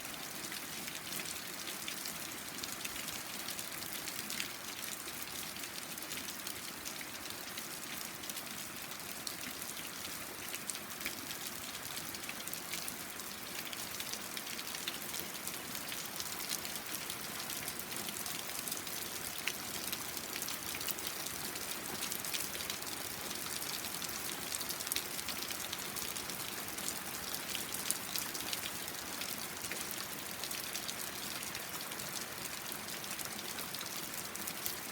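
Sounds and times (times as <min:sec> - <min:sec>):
raindrops ticking on surfaces: 0:09.6 - 0:34.9.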